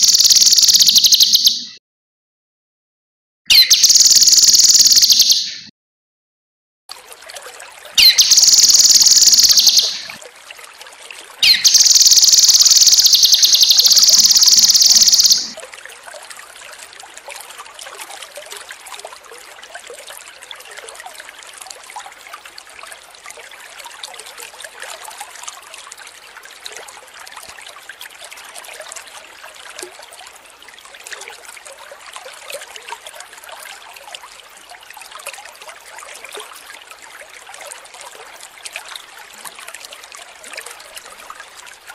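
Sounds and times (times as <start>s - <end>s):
water trickling: 0.0s - 1.6s, 3.8s - 5.3s, 6.9s - 41.9s
bird singing trilled phrases: 0.0s - 1.8s, 3.5s - 5.7s, 8.0s - 10.2s, 11.4s - 15.6s.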